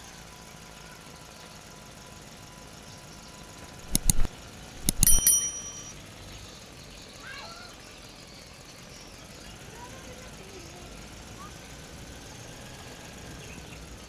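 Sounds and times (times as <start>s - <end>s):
hard objects clicking: 3.8s - 5.9s
metallic clinks: 3.8s - 6.0s.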